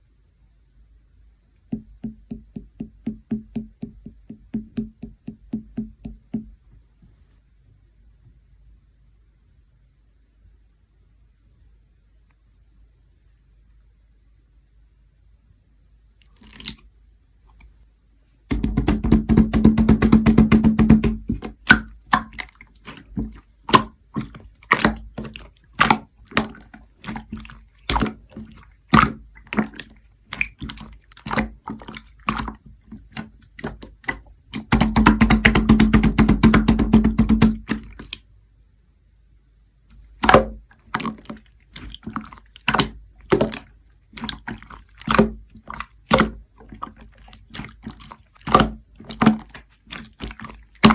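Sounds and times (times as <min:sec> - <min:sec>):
slime squished by hand: 0:16.2 - 0:16.9, 0:18.5 - 0:38.2, 0:40.0 - 0:50.9.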